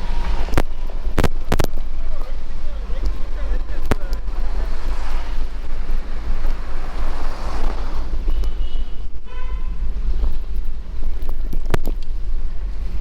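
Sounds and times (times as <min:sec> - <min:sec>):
vehicle passing: 0:00.0 - 0:10.6
street traffic: 0:00.0 - 0:13.0
wind rumbling on microphone: 0:00.0 - 0:13.0.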